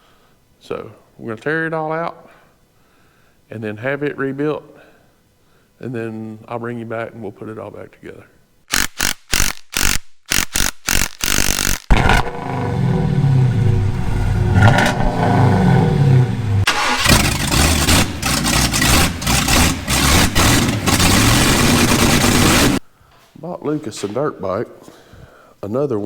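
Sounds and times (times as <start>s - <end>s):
two-stroke engine revving: 11.9s - 22.8s.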